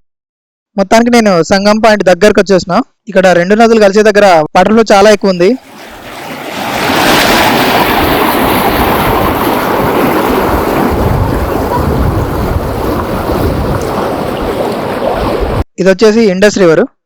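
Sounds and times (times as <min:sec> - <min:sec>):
river water rushing: 0:05.6 - 0:15.6
low rumble: 0:07.7 - 0:15.6.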